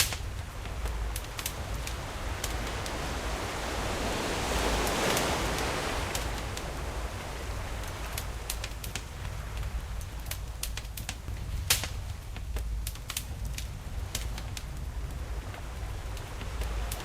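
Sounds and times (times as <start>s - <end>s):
sea wave washing in: 0.0s - 10.0s
campfire crackling: 0.0s - 17.0s.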